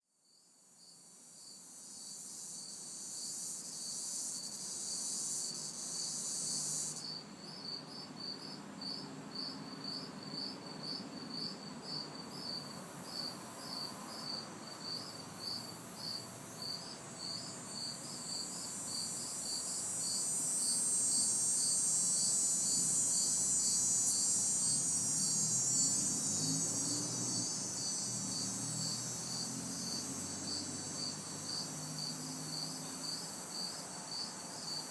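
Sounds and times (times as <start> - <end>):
crickets chirping: 0.2 - 34.9
cicada buzz: 0.3 - 34.9
distant traffic hum: 21.9 - 34.8.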